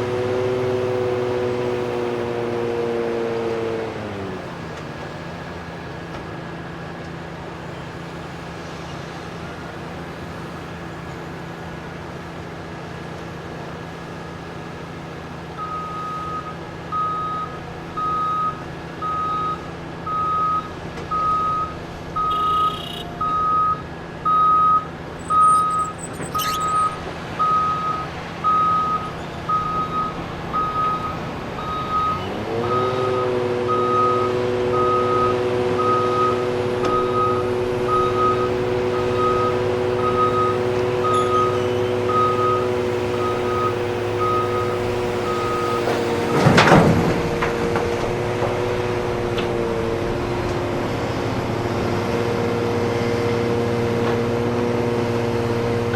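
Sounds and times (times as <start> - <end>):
diesel engines running: 0.0 - 55.9
backup alarm beeping: 15.6 - 32.2, 33.7 - 46.4.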